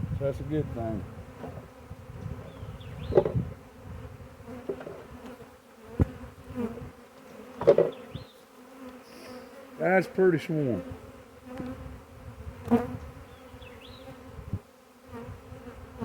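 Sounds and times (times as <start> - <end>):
bee swarm buzzing: 0.0 - 16.0
sharp knocks: 3.1 - 3.4, 7.6 - 8.0.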